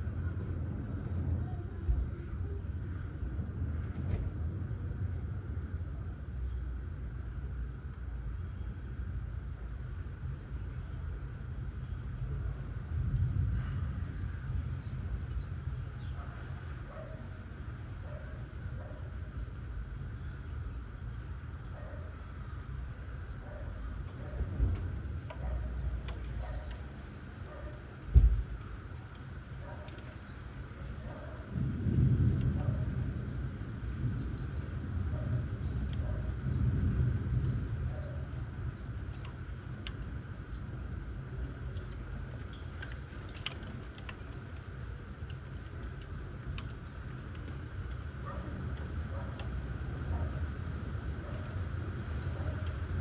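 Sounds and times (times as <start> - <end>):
rain hiss with ticking drops: 0.0 - 53.0
thunder rumbling: 23.9 - 40.0
low thump: 28.1 - 28.6.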